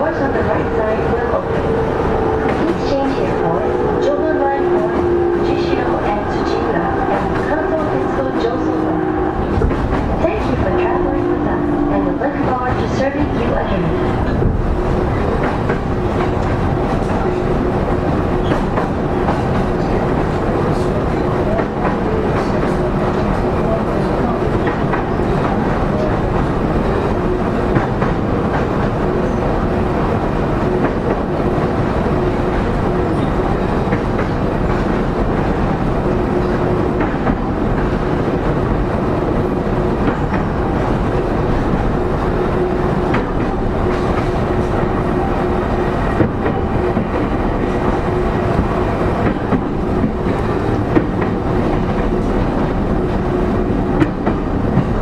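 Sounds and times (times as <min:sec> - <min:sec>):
train motor hum: 0:00.0 - 0:55.0
train wheel and rail rumble: 0:00.0 - 0:55.0
rail-joint clicks: 0:00.1 - 0:17.5, 0:18.4 - 0:26.5, 0:32.5 - 0:38.6, 0:42.9 - 0:45.2, 0:46.0 - 0:53.2, 0:53.9 - 0:55.0.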